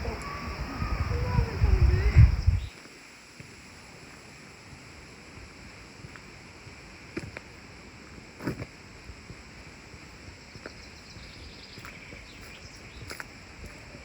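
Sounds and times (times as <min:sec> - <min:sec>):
background rush: 0:00.0 - 0:08.2
faint bird chirps: 0:10.6 - 0:14.0.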